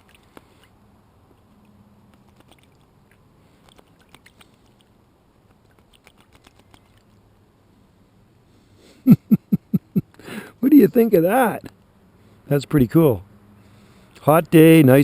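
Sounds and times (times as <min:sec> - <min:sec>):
bird splashing in bird bath: 0:02.1 - 0:04.9, 0:05.7 - 0:07.2.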